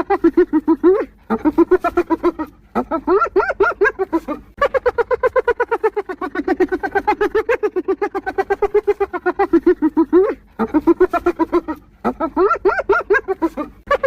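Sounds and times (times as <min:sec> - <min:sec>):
hyena giggling: 0:00.0 - 0:14.0.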